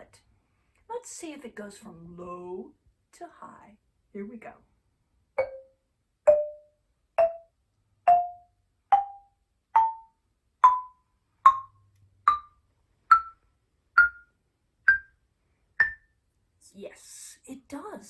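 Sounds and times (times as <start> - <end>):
wooden xylophone notes: 5.4 - 15.2, 15.8 - 16.2.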